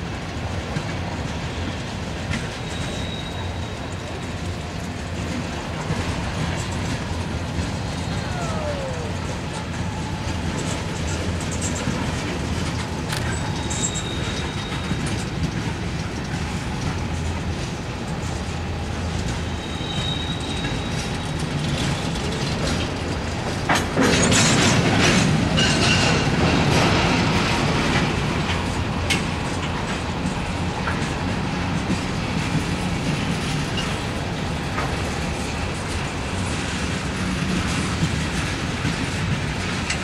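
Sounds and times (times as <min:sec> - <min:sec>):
freight train rumbling: 0:00.0 - 0:40.0
wheels clacking over rail joints: 0:00.0 - 0:40.0
high-pitched wheel squeals: 0:02.4 - 0:04.2, 0:07.7 - 0:10.7, 0:13.2 - 0:15.3, 0:19.4 - 0:22.2.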